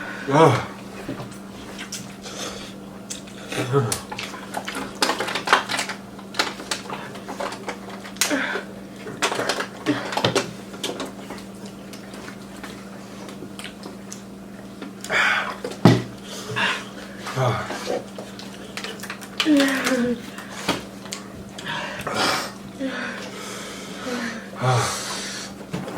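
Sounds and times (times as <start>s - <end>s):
slurping and chewing noodles: 15.0s - 22.7s.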